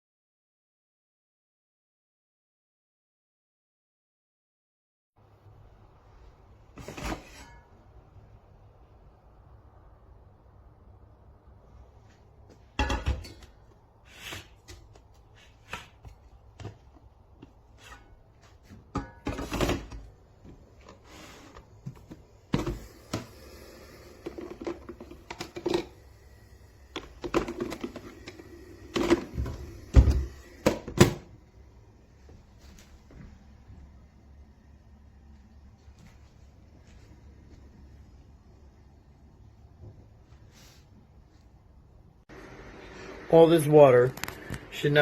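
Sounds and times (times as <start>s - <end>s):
hard objects clunking and clattering: 12.5s - 13.7s, 14.3s - 23.4s, 24.2s - 26.1s, 26.9s - 31.3s.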